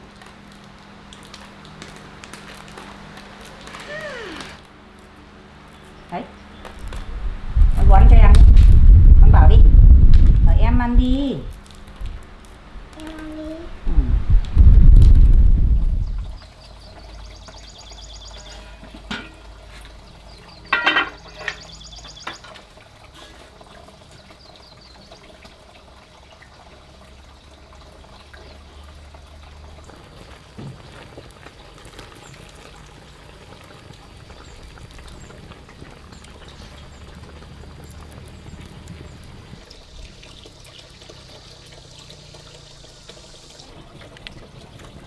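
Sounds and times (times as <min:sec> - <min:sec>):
running water trickling: 0:14.5 - 0:45.0.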